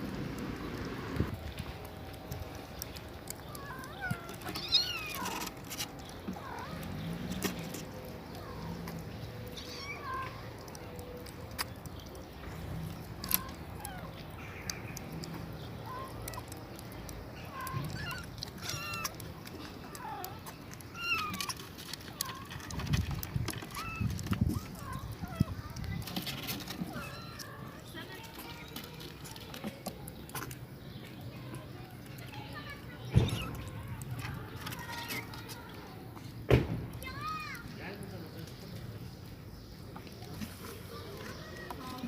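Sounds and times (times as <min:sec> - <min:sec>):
kittens mewing: 0:03.3 - 0:05.5, 0:17.3 - 0:21.6.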